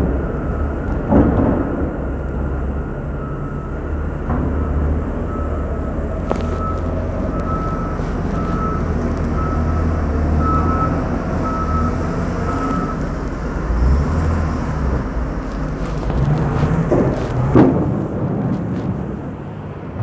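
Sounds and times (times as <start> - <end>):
reversing alarm beeping: 0.0 - 13.7
street traffic rumbling: 0.0 - 20.0.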